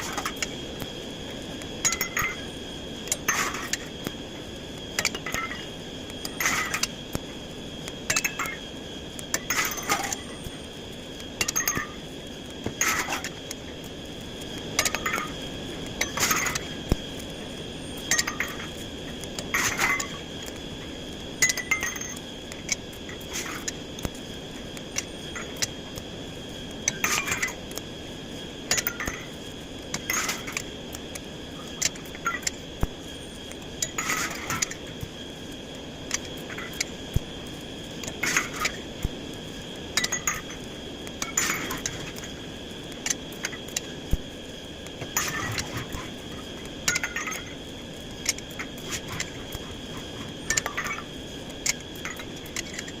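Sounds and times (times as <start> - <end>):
faint high whine: 0.0 - 53.0.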